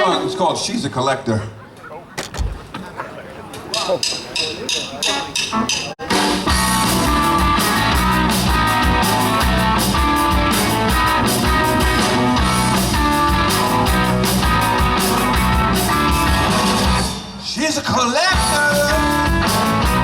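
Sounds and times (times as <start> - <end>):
drum kit steady beat: 3.8 - 17.6, 18.3 - 20.0
electric guitar: 6.1 - 17.2, 18.3 - 20.0.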